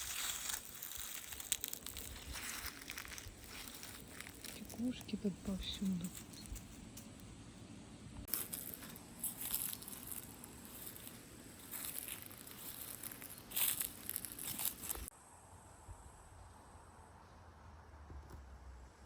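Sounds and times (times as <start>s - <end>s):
hedgehog rustling through dry leaves: 0.0s - 6.9s, 8.3s - 15.1s.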